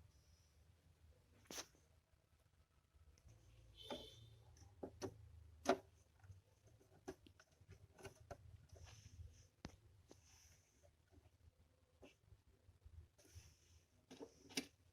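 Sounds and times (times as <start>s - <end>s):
faint clicks and light knocks: 3.1s - 11.4s.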